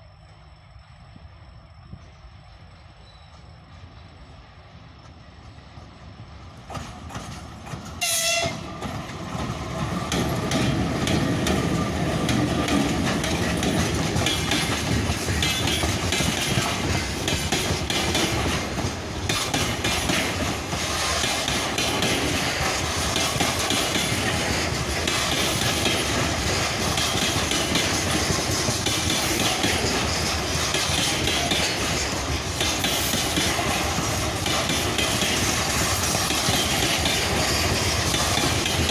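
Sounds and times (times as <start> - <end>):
train wheels rumbling on rails: 0.0 - 38.9
train horn blast: 8.0 - 8.7.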